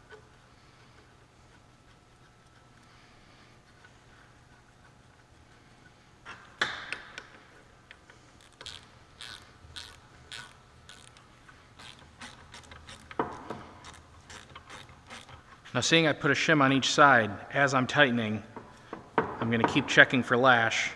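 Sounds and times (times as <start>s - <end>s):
metal parts clicking and clinking: 7.2s - 11.2s, 11.8s - 15.5s.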